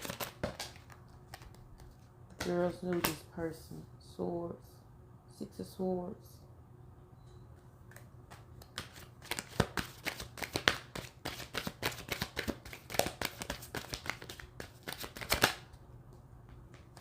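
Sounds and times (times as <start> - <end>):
cards being shuffled: 0.0 - 3.2, 7.9 - 15.7.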